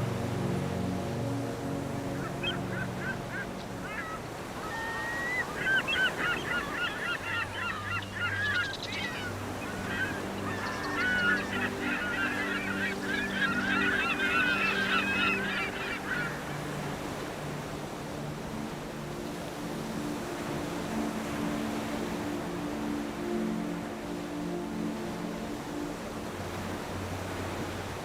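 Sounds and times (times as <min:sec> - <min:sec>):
ambient music drone: 0:00.0 - 0:28.0
wavering animal calls: 0:02.2 - 0:16.7.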